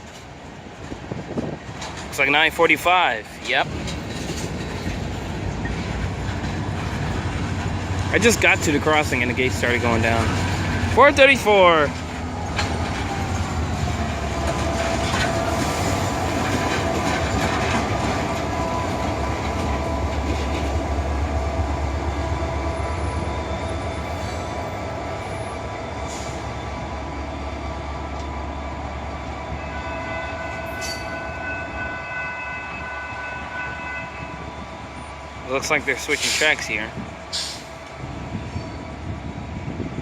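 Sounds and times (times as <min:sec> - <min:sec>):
wheels clicking over rail joints: 0:00.0 - 0:21.5
diesel locomotive engine rumbling: 0:00.0 - 0:40.0.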